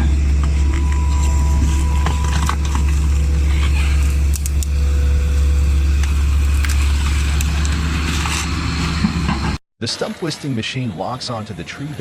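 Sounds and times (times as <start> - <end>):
diesel engine running under load: 0.0 - 9.6.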